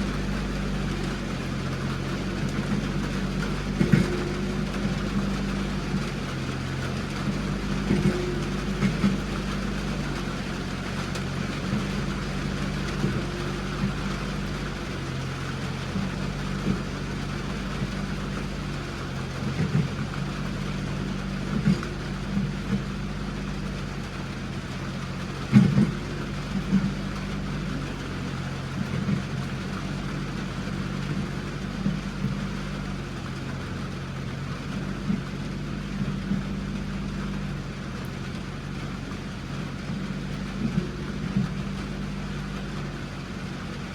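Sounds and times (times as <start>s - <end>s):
vehicle engine running: 0.0s - 43.9s.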